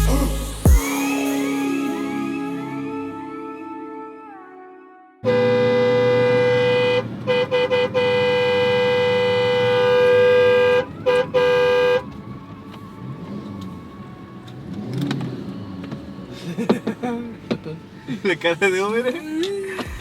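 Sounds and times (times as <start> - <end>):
vehicle horn honking: 5.2 - 12.2
vehicle running: 5.2 - 19.1
road noise: 5.2 - 20.0.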